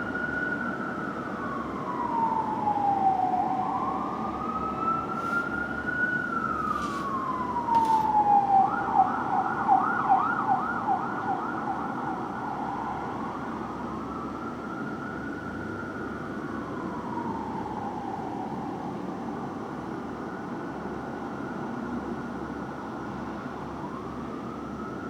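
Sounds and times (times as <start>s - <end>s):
fire engine siren wailing and yelping: 0.0s - 25.0s
truck engine and road noise: 4.2s - 8.4s.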